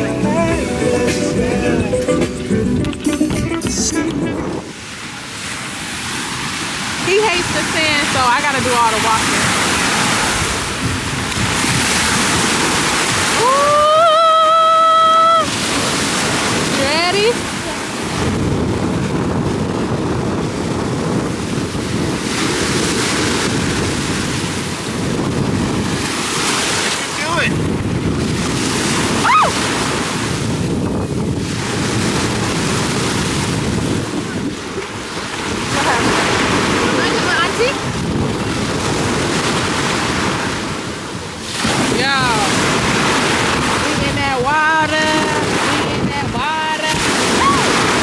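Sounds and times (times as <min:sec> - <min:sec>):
ocean surf: 0:00.0 - 0:48.0
wind rushing on microphone: 0:00.0 - 0:48.0
high cry: 0:13.4 - 0:15.5, 0:29.2 - 0:29.6, 0:47.3 - 0:47.8.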